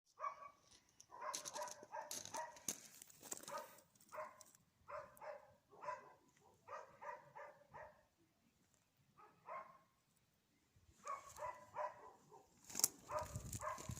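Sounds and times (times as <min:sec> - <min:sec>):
dog barking: 0:00.2 - 0:02.7, 0:03.4 - 0:08.1, 0:09.2 - 0:09.9, 0:11.0 - 0:13.9.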